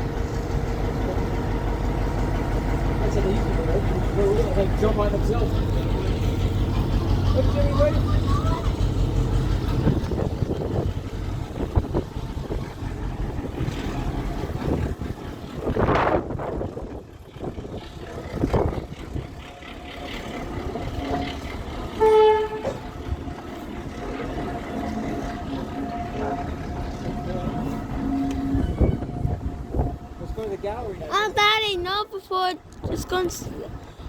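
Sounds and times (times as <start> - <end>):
train engine rumbling: 0.0 - 34.0
train horn toot: 21.0 - 23.2, 25.3 - 30.5.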